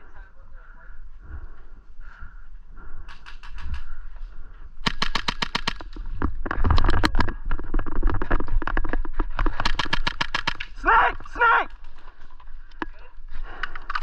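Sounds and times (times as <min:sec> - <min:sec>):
airsoft guns firing automatic: 0:04.8 - 0:06.1, 0:09.4 - 0:10.9.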